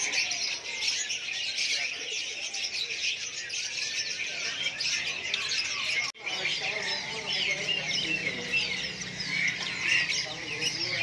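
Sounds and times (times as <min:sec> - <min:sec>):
songbirds chirping and singing: 0:00.0 - 0:11.0.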